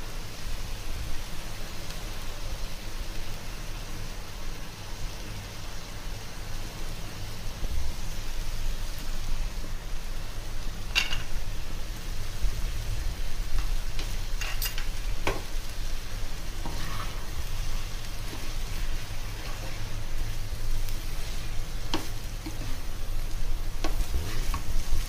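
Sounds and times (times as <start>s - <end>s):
food sizzling in a pan: 0.0s - 25.0s
utensil clicking and scraping pan: 16.6s - 17.3s.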